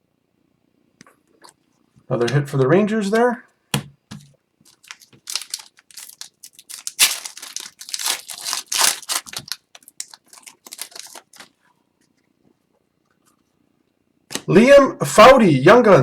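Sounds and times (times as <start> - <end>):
wrapper tearing and crinkling: 4.7 - 11.6.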